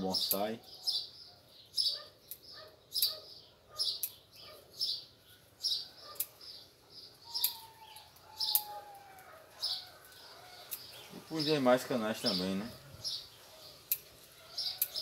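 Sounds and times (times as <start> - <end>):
small bird chirping: 0.0 - 15.0
faint sharp clicks: 7.4 - 9.3, 10.0 - 10.9, 13.9 - 14.1.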